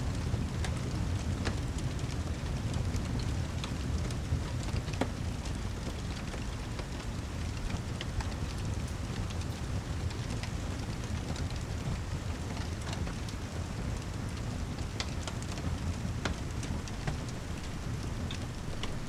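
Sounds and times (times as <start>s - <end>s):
heavy rain falling: 0.1s - 19.0s
sharp ticks and crackles: 4.7s - 19.0s.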